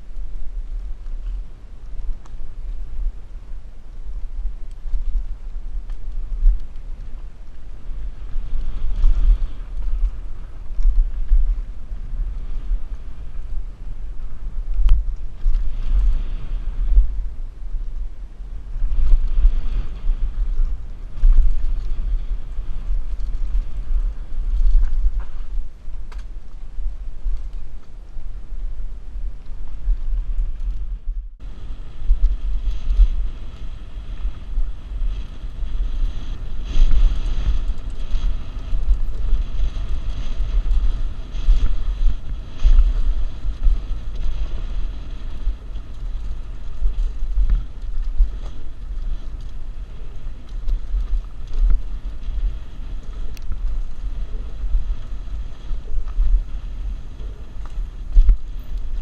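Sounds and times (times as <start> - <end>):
wind buffeting microphone: 0.0 - 59.0
bike clicks and rattles: 18.7 - 59.0.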